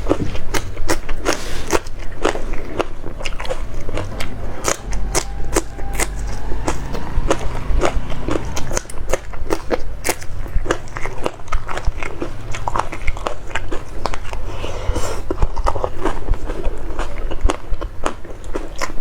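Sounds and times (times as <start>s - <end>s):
person crunching food: 0.0s - 3.7s.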